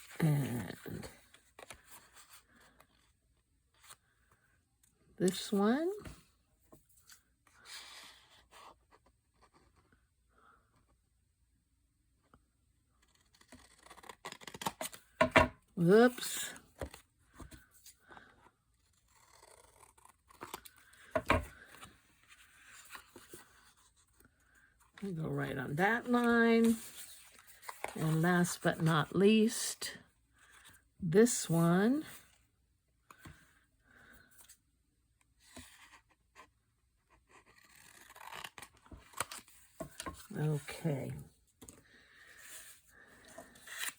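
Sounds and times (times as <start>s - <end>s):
paper pages rustling: 26.0s - 28.9s, 41.6s - 43.9s.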